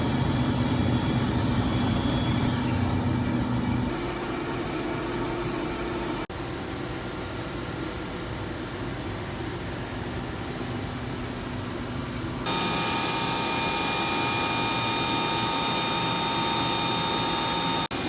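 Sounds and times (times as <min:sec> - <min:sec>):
machine humming: 0:00.0 - 0:06.3, 0:10.0 - 0:18.0.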